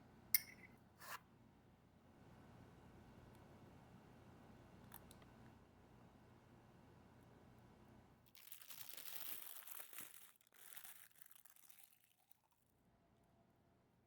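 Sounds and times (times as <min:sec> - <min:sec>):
faint dry crinkling and crunching: 0:08.3 - 0:12.6.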